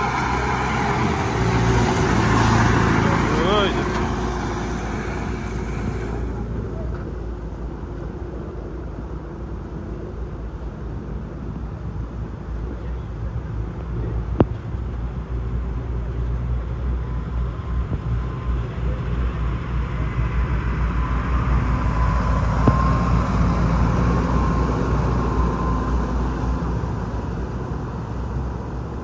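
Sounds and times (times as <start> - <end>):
vehicle engine running with whine: 0.0 - 8.2, 15.5 - 29.0.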